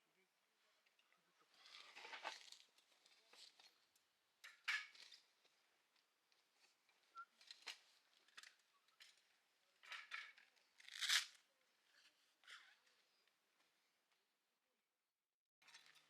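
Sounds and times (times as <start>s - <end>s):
small objects clicking and scraping: 9.8s - 11.4s.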